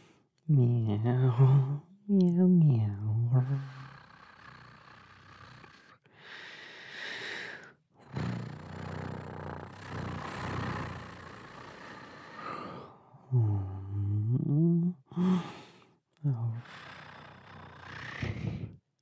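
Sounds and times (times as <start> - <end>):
man imitating cat sounds: 0.5 - 4.0.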